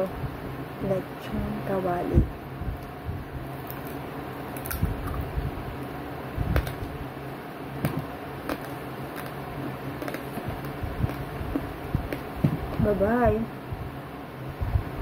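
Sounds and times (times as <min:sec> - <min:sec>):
low hum: 0:00.0 - 0:15.0
crunchy chewing: 0:03.6 - 0:05.4, 0:07.8 - 0:12.8.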